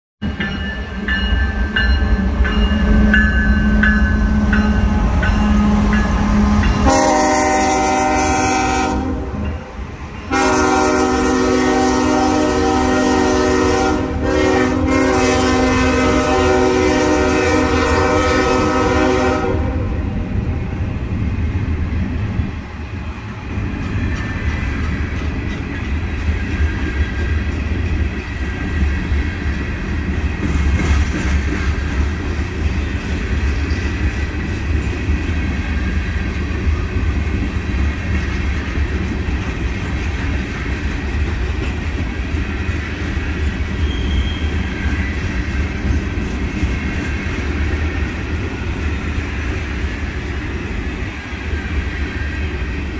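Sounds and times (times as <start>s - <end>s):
freight train rumbling on rails: 0.2s - 52.9s
wheels clicking over rail joints: 23.6s - 44.4s.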